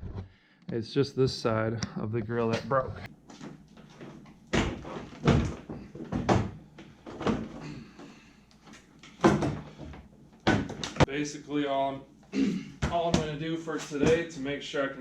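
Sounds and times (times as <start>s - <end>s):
hollow clunks and knocks: 9.1s - 11.1s.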